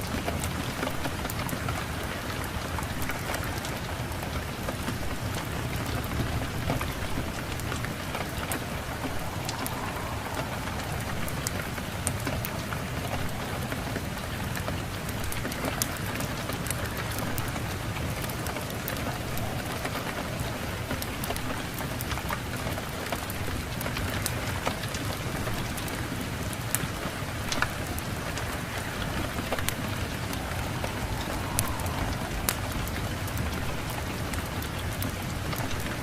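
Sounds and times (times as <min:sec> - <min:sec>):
steady rain falling: 0:00.0 - 0:36.0
low steady rumble: 0:06.2 - 0:13.5.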